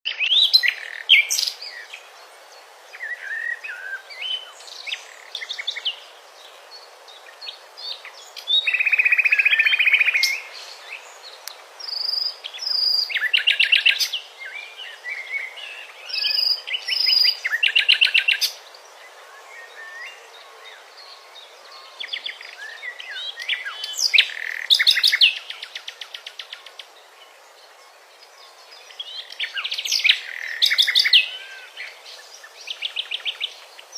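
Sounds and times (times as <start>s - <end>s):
songbirds trilling: 0.1s - 33.9s
bird chirps and calls: 6.8s - 18.7s, 19.3s - 26.9s, 28.3s - 33.9s.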